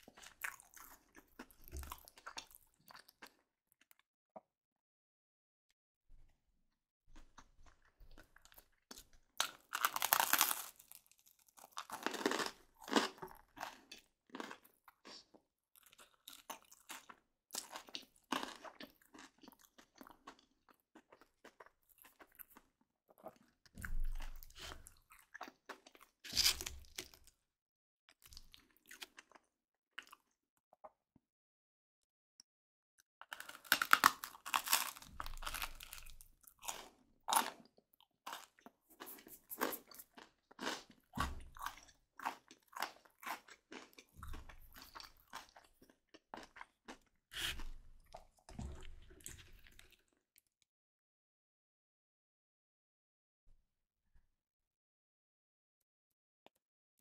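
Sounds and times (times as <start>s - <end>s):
crunching crispy bread: 8.4s - 15.0s, 25.8s - 27.2s, 33.2s - 37.6s.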